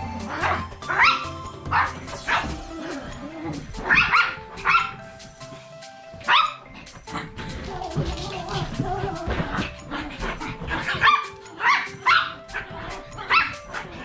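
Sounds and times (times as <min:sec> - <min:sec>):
small dog yapping: 0:10.8 - 0:13.9.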